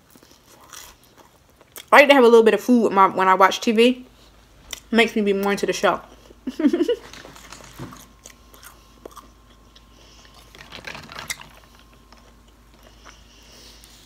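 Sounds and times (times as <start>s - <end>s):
person chewing crunchy food: 0.0s - 1.9s, 7.4s - 14.0s.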